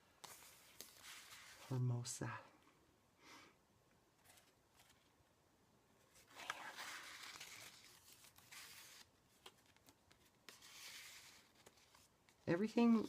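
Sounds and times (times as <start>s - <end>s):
paper pages rustling: 0.0s - 1.8s, 4.2s - 5.2s, 6.1s - 13.0s.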